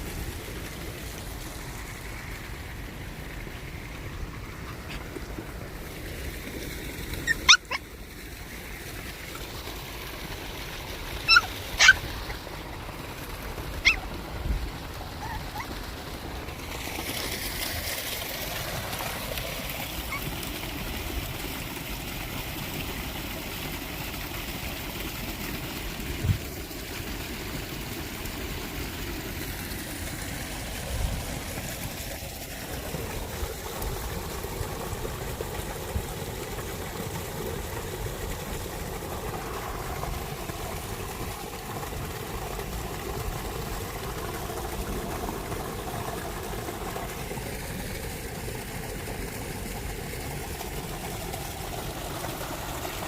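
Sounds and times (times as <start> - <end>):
outdoor background noise: 0.0 - 53.0
puppy yipping: 7.2 - 7.9, 11.2 - 12.5, 13.8 - 14.1, 15.2 - 15.8, 19.9 - 20.4.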